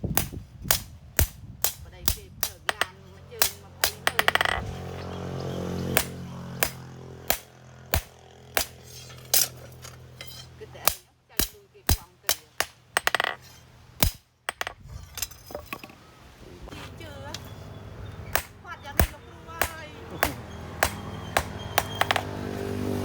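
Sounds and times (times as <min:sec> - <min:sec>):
hammer striking metal on anvil: 0:00.2 - 0:04.6, 0:06.0 - 0:09.6, 0:10.2 - 0:14.8, 0:18.3 - 0:22.4.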